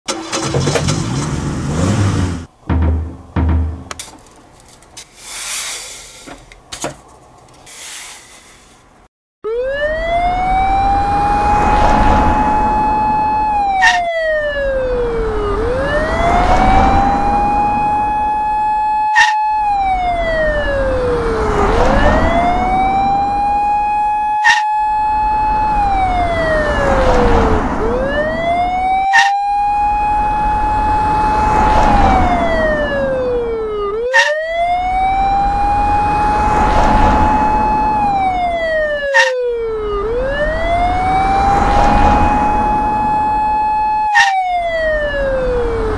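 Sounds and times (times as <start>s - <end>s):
police siren wailing: 9.4s - 45.9s.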